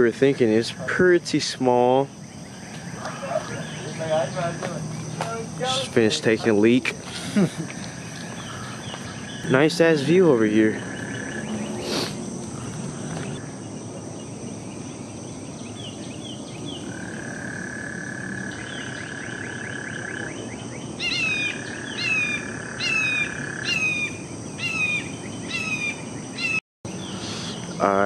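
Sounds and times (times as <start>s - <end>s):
high insect drone: 0.0s - 28.0s.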